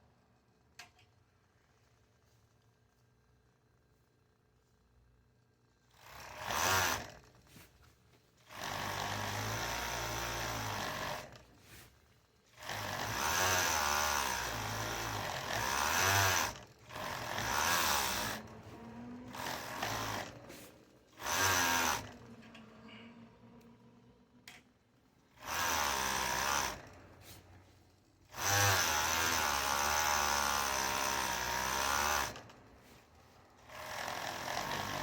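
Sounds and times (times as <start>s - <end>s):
sewing machine running: 5.9s - 7.3s, 8.4s - 11.4s, 12.5s - 22.3s, 25.3s - 27.2s, 28.2s - 32.6s, 33.4s - 35.0s.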